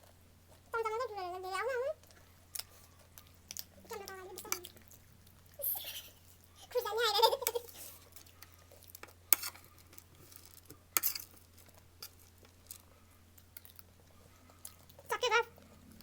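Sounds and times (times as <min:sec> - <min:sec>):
faint low hum: 0:00.0 - 0:16.0
crunching of crisp snacks: 0:02.0 - 0:05.6, 0:07.7 - 0:16.0.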